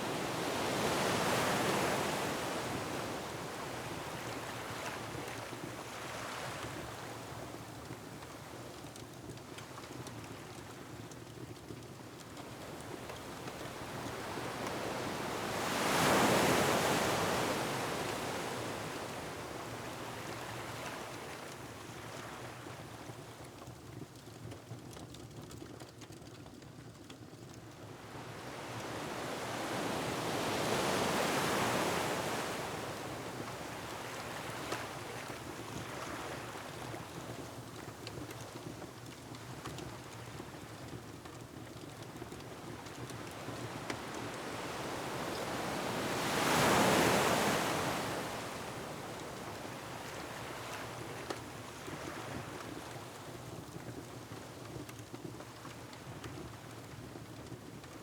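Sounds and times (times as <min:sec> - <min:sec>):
waves breaking on rocky shore: 0:12.6 - 0:21.2, 0:28.1 - 0:37.1, 0:42.5 - 0:53.8
steady wind-like noise: 0:42.7 - 0:53.3.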